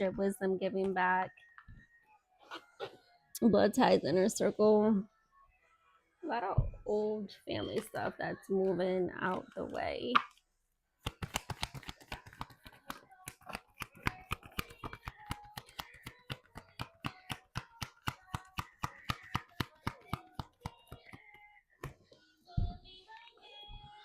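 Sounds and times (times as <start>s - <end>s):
cards being shuffled: 11.0s - 21.3s.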